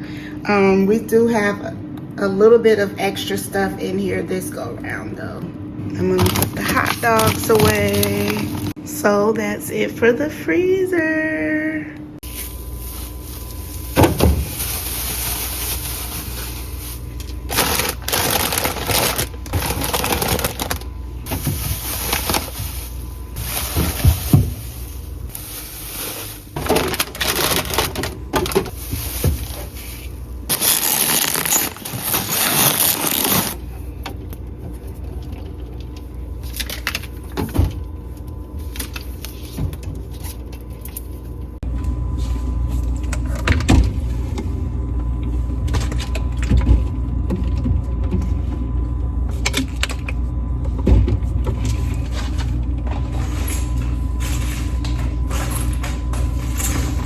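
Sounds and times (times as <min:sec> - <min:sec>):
plastic packaging rustling: 0:06.2 - 0:08.8, 0:12.2 - 0:33.8.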